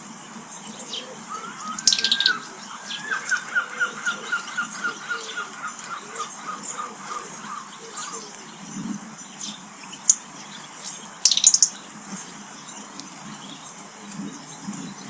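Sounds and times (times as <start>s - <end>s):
garden birds calling: 0.0s - 15.0s
high bird chirps: 1.3s - 5.9s, 11.2s - 11.8s.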